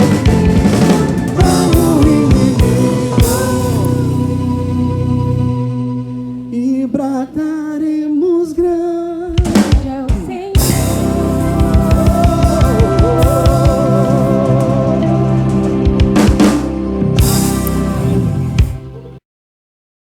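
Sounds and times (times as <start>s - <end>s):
drum fill: 0.0s - 4.3s, 9.4s - 19.0s
soul band playing: 0.0s - 7.1s, 9.3s - 19.2s
person singing: 0.0s - 18.3s.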